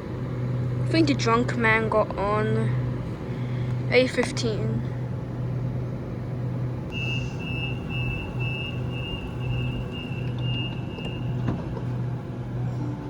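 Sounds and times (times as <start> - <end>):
train steady hum: 0.0 - 13.0
train door warning beeps: 6.9 - 11.6.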